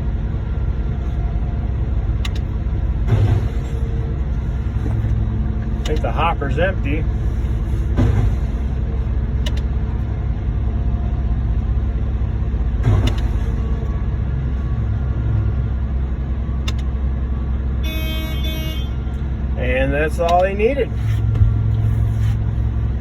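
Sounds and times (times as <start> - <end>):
diesel truck engine running: 0.0 - 23.0
short knocks and clanks: 7.9 - 8.7.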